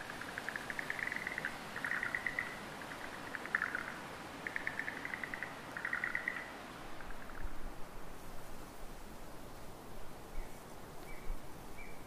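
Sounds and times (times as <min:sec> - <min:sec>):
faint background hiss: 0:00.0 - 0:12.0
bird trilling: 0:00.4 - 0:02.6.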